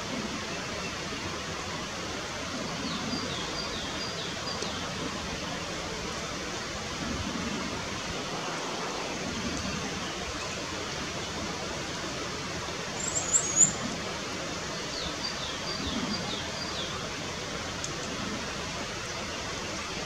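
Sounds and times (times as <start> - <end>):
steady outdoor hiss: 0.0 - 20.0
bird calls: 13.0 - 14.0.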